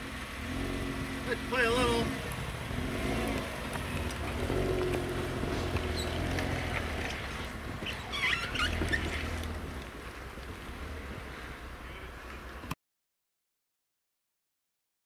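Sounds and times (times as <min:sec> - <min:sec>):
engine running at low revs: 0:00.0 - 0:12.7
short high squeaks: 0:05.8 - 0:09.5.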